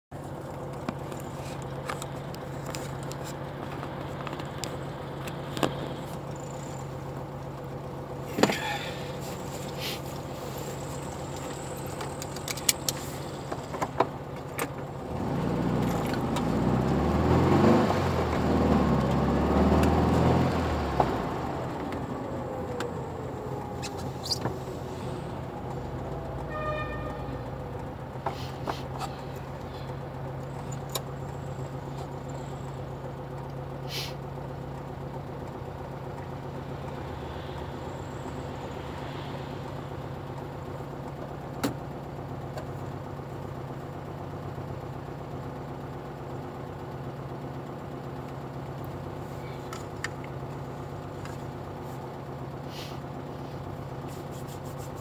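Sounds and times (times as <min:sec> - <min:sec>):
car engine idling: 0:00.1 - 0:55.0
car driving past: 0:36.4 - 0:41.0.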